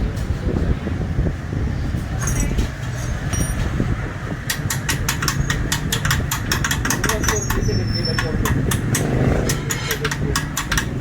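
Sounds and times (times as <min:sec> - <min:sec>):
rapid sharp clicks: 0:04.5 - 0:07.6, 0:08.2 - 0:11.0.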